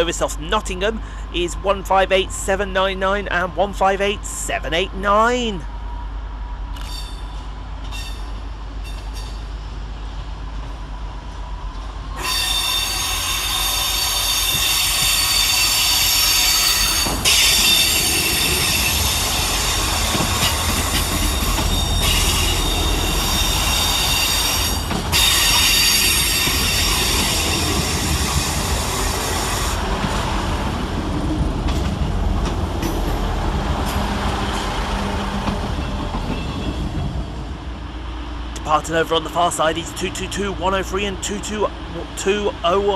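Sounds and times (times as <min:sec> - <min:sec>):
low train rumble: 0:00.0 - 0:42.9
train wheels squealing on rails: 0:06.8 - 0:09.8, 0:12.1 - 0:29.8, 0:35.4 - 0:37.1.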